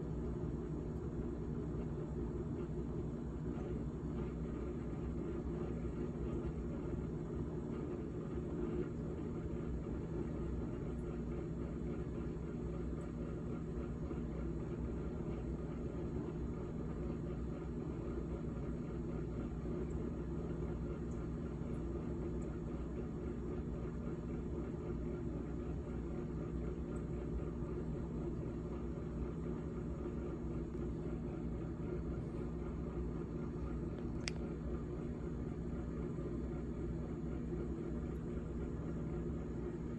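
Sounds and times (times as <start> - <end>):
refrigerator humming: 0.0 - 39.9.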